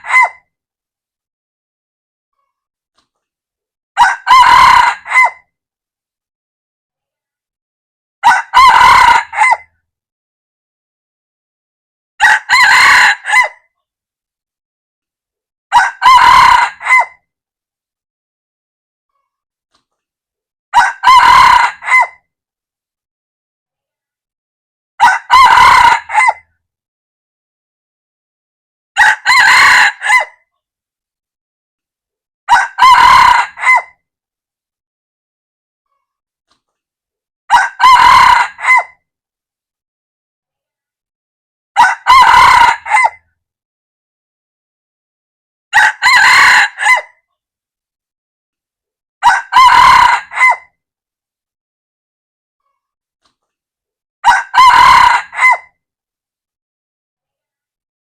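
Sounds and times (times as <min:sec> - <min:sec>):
rooster crowing: 0:04.0 - 0:05.4, 0:08.2 - 0:09.7, 0:12.2 - 0:13.6, 0:15.7 - 0:17.2, 0:20.8 - 0:22.2, 0:25.0 - 0:26.4, 0:29.0 - 0:30.3, 0:32.5 - 0:33.9, 0:37.5 - 0:38.9, 0:41.8 - 0:43.2, 0:45.7 - 0:47.1, 0:49.2 - 0:50.7, 0:54.2 - 0:55.7.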